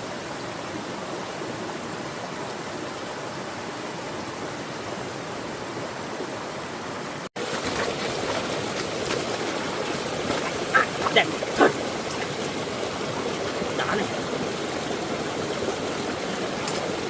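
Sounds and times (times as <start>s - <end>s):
rushing floodwater: 0.0s - 17.0s
faint splashes: 7.4s - 17.0s.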